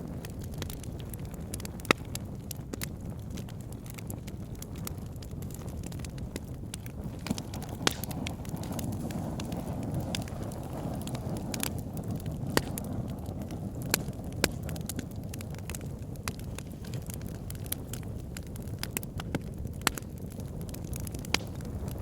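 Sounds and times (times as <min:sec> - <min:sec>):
fire crackling in fireplace: 0:00.0 - 0:22.0.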